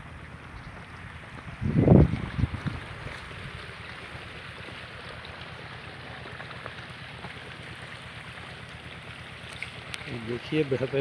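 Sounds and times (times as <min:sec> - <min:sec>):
tractor diesel engine running: 0:00.0 - 0:11.0
water pouring out: 0:02.0 - 0:11.0.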